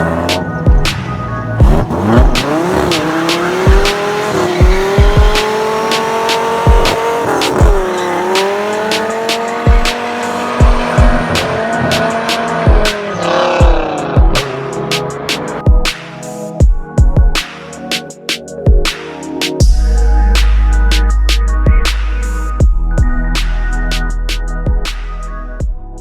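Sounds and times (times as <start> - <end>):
car engine revving: 0.0 - 15.6
music with thumping beat: 0.0 - 26.0.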